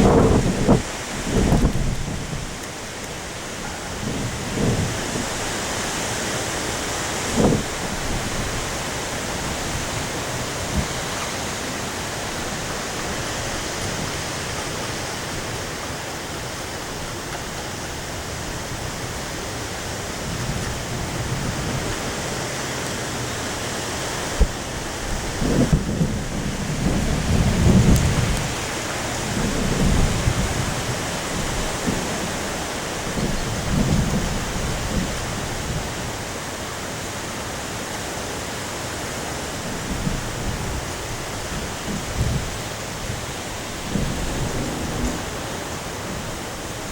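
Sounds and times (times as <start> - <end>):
heavy rain and wind: 0.0 - 46.9.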